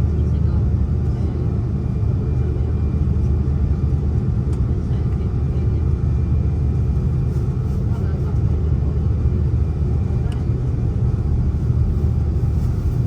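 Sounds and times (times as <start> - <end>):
aircraft cabin engine rumble: 0.0 - 13.0.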